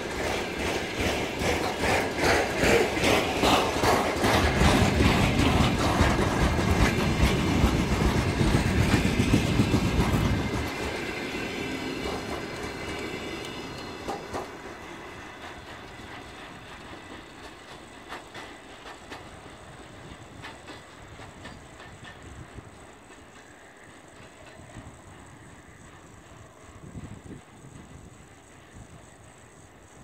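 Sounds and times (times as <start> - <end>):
wheels clicking over rail joints: 0.0 - 29.6
freight train heavy rumble: 0.0 - 30.0.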